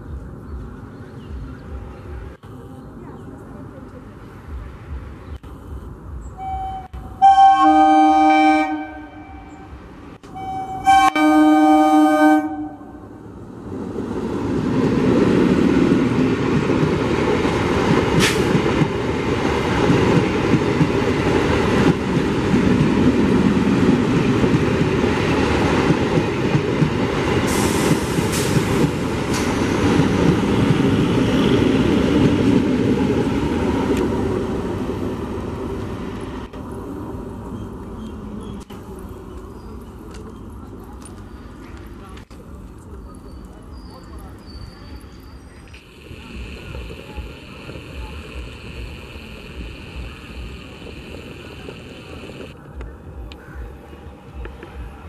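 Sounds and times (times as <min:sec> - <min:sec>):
train horn blasts: 0:06.4 - 0:13.2
train wheels rumbling on rails: 0:12.5 - 0:55.0.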